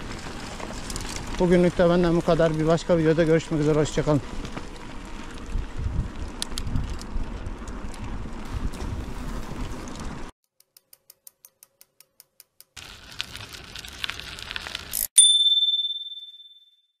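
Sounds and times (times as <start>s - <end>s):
rustling riding noise: 0.0s - 10.3s, 12.8s - 15.1s
bicycle bell ding: 15.2s - 17.0s.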